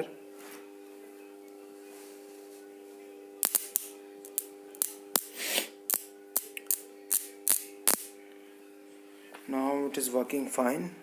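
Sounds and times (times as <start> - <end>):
electric arcing cracks: 3.4 - 8.2.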